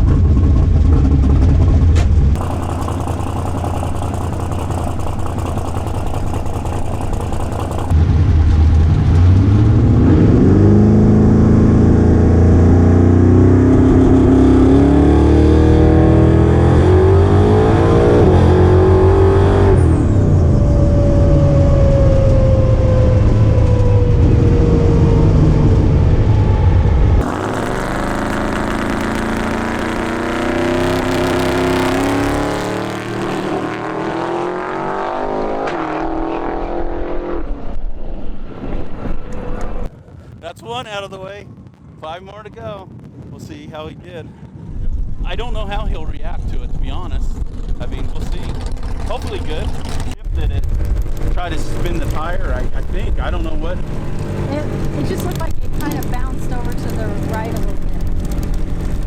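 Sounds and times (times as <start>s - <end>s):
drag car engine revving: 0.0s - 37.5s, 47.4s - 59.0s
whine falling in pitch: 27.0s - 34.0s.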